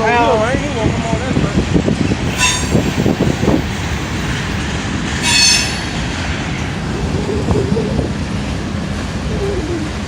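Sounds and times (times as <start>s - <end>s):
train wheels rumbling on rail: 0.7s - 9.3s
high-pitched wheel squeal: 2.2s - 7.5s.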